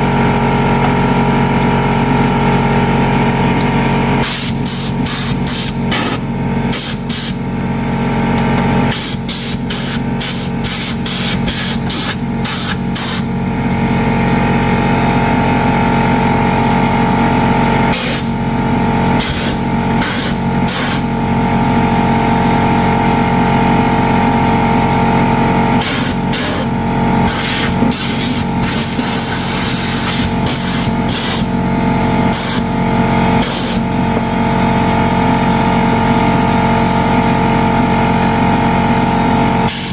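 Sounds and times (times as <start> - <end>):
mechanical hum: 0.0 - 39.9
pneumatic tool air hiss: 4.2 - 7.4, 8.8 - 13.3, 17.9 - 18.3, 19.2 - 21.1, 25.8 - 31.6, 32.3 - 32.8, 33.4 - 33.8, 39.7 - 39.9.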